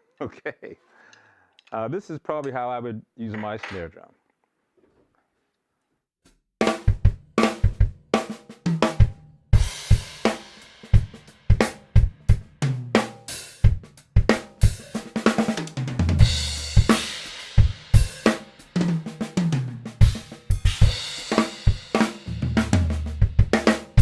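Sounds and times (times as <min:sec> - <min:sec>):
bass drum: 0:06.6 - 0:24.0.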